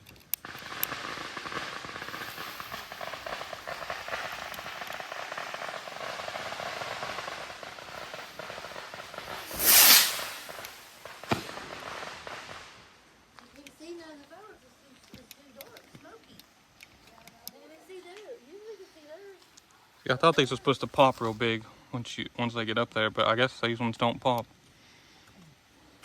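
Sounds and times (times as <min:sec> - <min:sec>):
fuse sizzling and crackling: 0:00.0 - 0:19.8
rocket launching whoosh: 0:01.2 - 0:12.8
small pop: 0:09.4 - 0:11.6.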